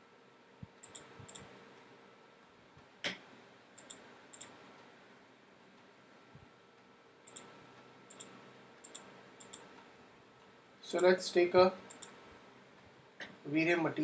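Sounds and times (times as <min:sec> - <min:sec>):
faint room hiss: 0:00.0 - 0:14.0
computer mouse clicking: 0:00.8 - 0:01.5, 0:03.8 - 0:04.6, 0:07.3 - 0:07.5, 0:08.1 - 0:09.7, 0:11.9 - 0:12.2.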